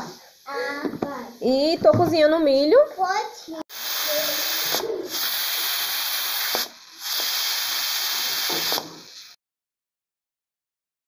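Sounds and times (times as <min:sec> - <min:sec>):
steam hissing from a pot: 0:03.7 - 0:09.1.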